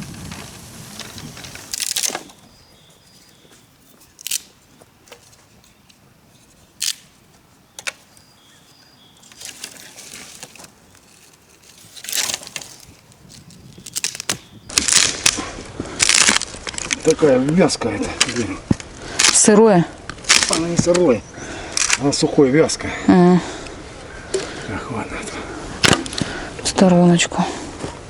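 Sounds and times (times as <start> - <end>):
dead branches cracking: 0.0 - 17.2, 18.2 - 21.0, 21.7 - 22.2
rustling of dry wood: 0.0 - 22.2.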